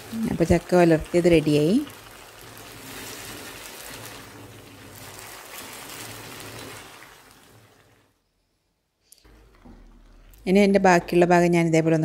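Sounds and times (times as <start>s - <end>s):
food sizzling in oil: 0.0s - 8.1s.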